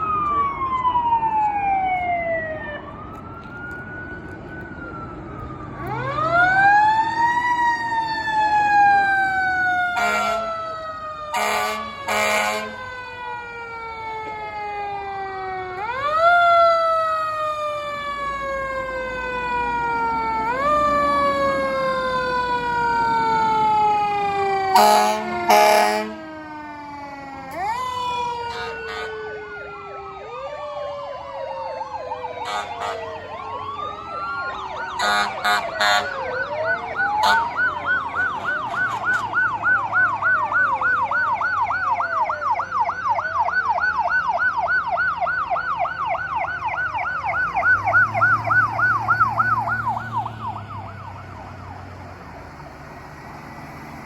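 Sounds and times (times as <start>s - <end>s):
fire truck sirens wailing: 0.0s - 54.0s
horn blasts: 10.0s - 10.6s, 11.3s - 12.8s, 24.7s - 26.2s, 28.5s - 29.2s, 32.4s - 33.1s, 35.0s - 36.2s, 37.2s - 37.6s.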